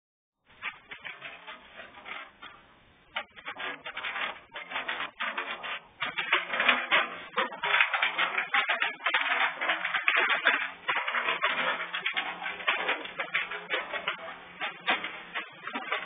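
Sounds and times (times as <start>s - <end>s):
heavy rain clattering: 0.6s - 16.0s.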